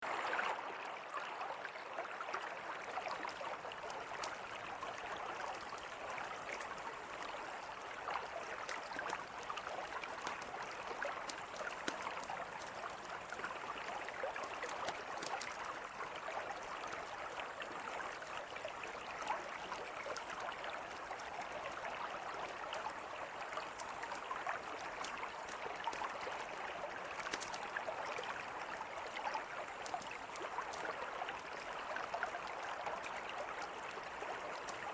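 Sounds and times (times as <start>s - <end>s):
campfire crackling: 8.5s - 15.9s, 27.1s - 27.7s, 29.7s - 30.9s.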